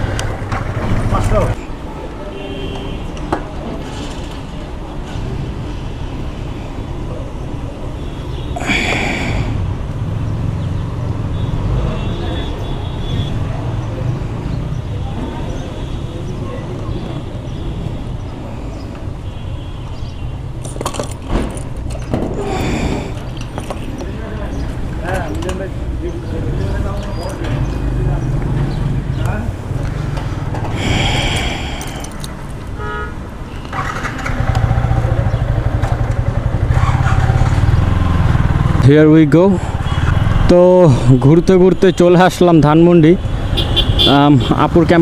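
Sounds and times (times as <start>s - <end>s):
wind and road noise rumble: 0.0s - 2.2s, 3.1s - 45.0s
vehicle horn toot: 11.4s - 13.4s, 32.8s - 34.0s, 43.5s - 44.5s
motorcycle engine running: 33.9s - 38.9s.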